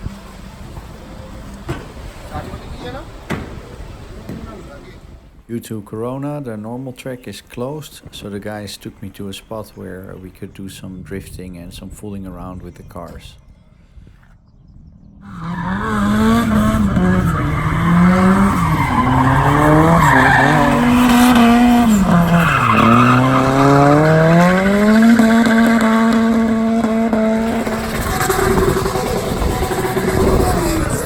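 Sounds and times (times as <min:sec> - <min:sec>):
tyres squealing: 0:15.2 - 0:25.8
car engine revving: 0:15.2 - 0:31.0.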